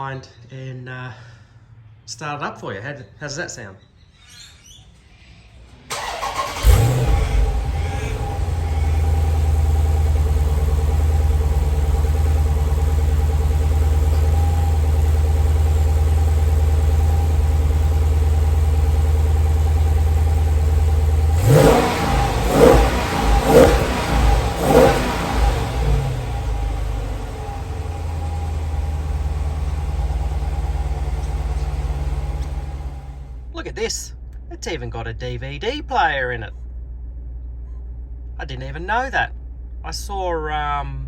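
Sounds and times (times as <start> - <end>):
starter motor cranking: 5.9 - 9.1
engine revving in short blips: 5.9 - 12.2, 19.4 - 33.5
car engine idling: 5.9 - 41.0.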